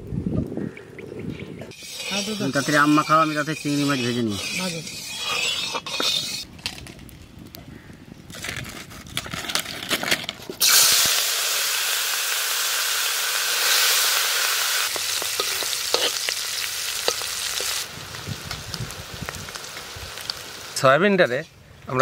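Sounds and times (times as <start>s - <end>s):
prawns sizzling in oil: 1.7s - 6.4s, 10.6s - 21.0s
metal spatula scraping: 1.7s - 6.5s, 14.8s - 16.4s.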